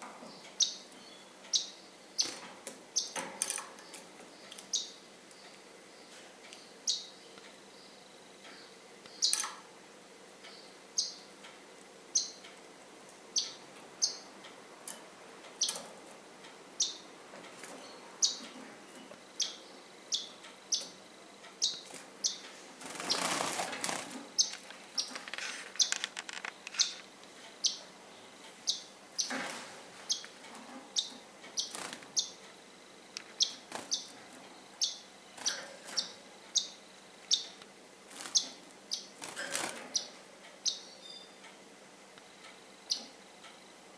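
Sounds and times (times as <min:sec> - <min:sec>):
birds chirping: 0:00.0 - 0:11.4, 0:12.0 - 0:12.5, 0:13.2 - 0:16.0, 0:16.7 - 0:29.4, 0:30.0 - 0:32.5, 0:33.2 - 0:37.6, 0:38.2 - 0:41.5, 0:42.8 - 0:43.2
wings flapping: 0:22.8 - 0:26.4.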